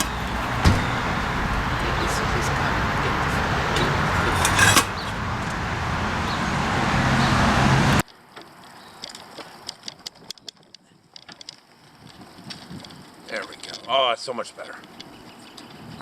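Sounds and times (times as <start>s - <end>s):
vehicle road noise: 0.0s - 8.0s.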